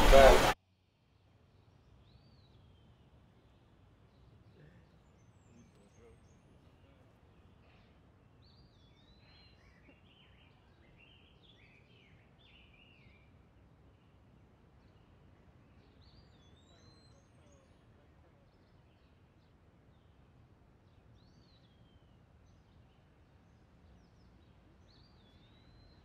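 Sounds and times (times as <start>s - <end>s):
steady low hiss: 0.0s - 0.6s
songbird warbling chirps: 14.8s - 17.8s.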